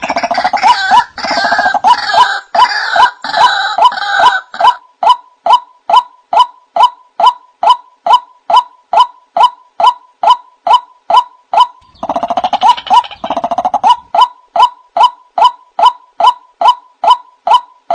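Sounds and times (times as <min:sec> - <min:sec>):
stuttering run of bird calls: 0:00.0 - 0:04.3, 0:11.6 - 0:17.6
waterhen calling: 0:11.6 - 0:16.0.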